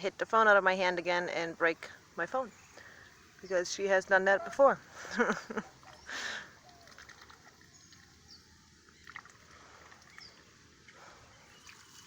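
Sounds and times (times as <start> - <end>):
goose dabbling in water: 5.4 - 12.0
splash in puddle: 5.7 - 8.1, 8.9 - 10.4, 11.5 - 12.0.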